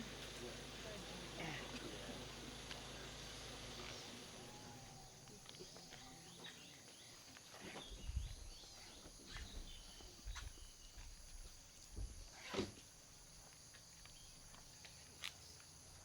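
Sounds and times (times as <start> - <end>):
high insect drone: 0.0 - 7.0
bird chirps: 3.7 - 11.0.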